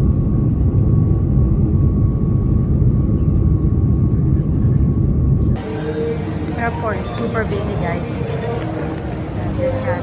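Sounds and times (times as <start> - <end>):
jet engine and airflow rumble: 0.0 - 10.0.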